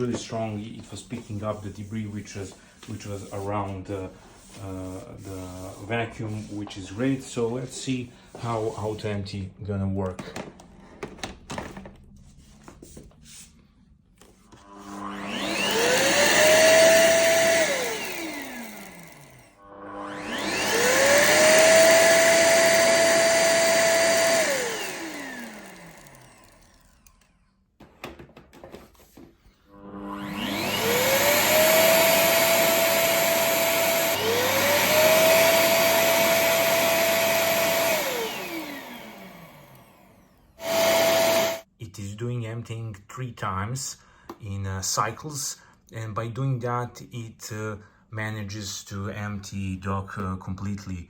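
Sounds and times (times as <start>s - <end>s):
suction motor whining: 14.5s - 27.4s, 29.7s - 41.6s.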